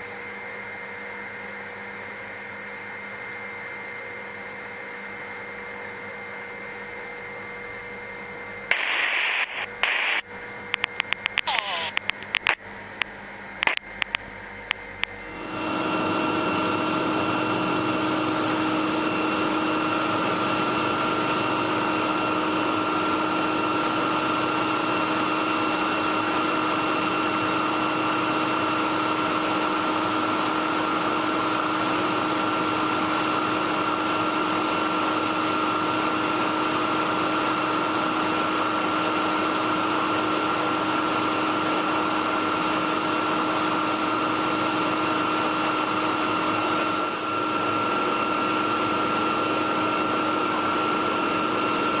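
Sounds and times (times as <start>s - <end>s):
short clicks: 8.7s - 10.2s, 10.8s - 14.2s
helicopter engine and rotors: 9.6s - 52.0s.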